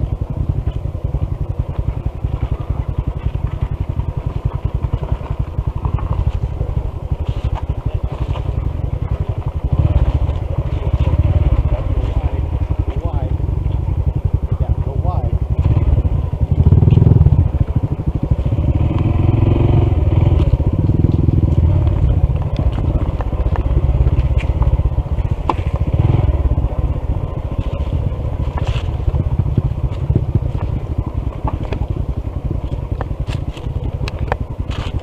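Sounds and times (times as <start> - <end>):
motorcycle engine at low throttle: 0.0 - 35.0
tyres crunching over gravel: 20.2 - 35.0.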